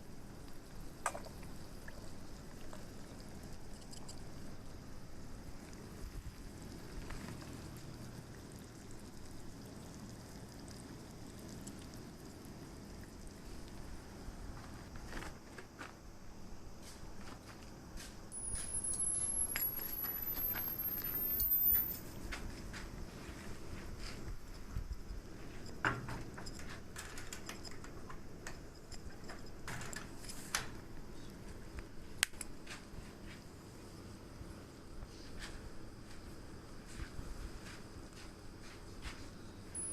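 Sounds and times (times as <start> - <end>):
campfire crackling: 0.0 - 15.4, 18.3 - 37.0
skillet sizzling: 18.3 - 22.2.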